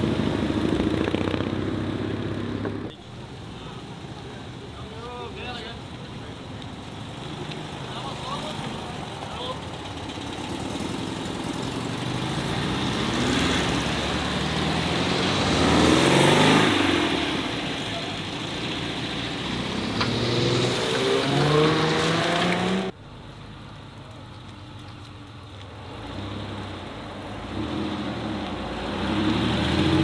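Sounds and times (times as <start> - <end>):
cars accelerating past: 6.9 - 23.0, 25.8 - 30.0
car engine revving: 9.6 - 23.0, 27.4 - 30.0.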